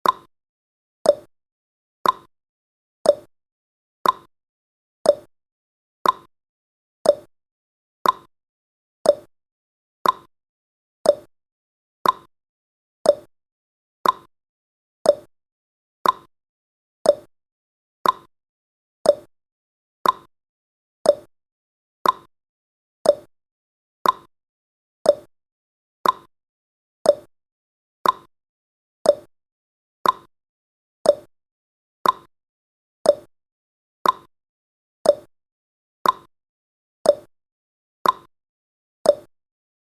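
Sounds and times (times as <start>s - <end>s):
clock ticking: 2.0s - 2.3s, 4.0s - 4.3s, 6.0s - 6.3s, 8.0s - 8.3s, 10.0s - 10.3s, 12.0s - 12.3s, 14.0s - 14.3s, 16.0s - 16.3s, 18.0s - 18.3s, 20.0s - 20.3s, 22.0s - 22.3s, 23.1s - 23.3s, 24.0s - 24.3s, 26.0s - 26.3s, 28.0s - 28.3s, 29.1s - 29.3s, 30.0s - 30.3s, 31.1s - 31.3s, 32.0s - 32.3s, 33.1s - 33.3s, 34.0s - 34.3s, 35.1s - 35.3s, 36.0s - 36.3s, 38.0s - 38.3s, 39.1s - 39.3s.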